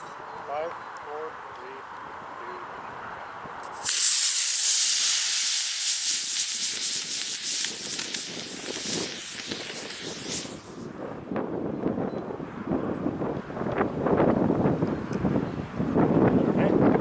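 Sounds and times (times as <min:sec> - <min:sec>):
wind rumbling on microphone: 0:02.1 - 0:17.0
rocket motor hissing: 0:03.6 - 0:11.2.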